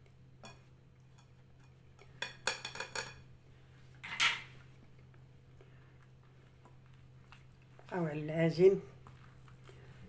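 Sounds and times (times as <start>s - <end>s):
utensils clinking against a bowl: 0.4s - 3.3s.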